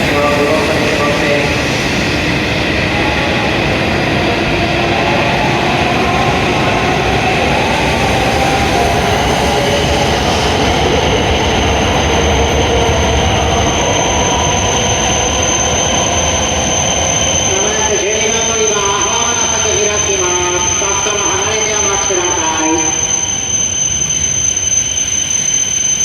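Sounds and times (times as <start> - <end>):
train wheels rumbling: 0.0 - 26.0
high thin brake whine: 13.7 - 26.0.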